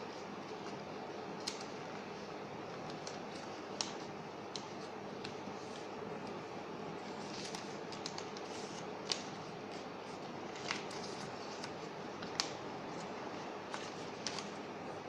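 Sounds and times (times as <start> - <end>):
paper crinkling: 7.1 - 14.6.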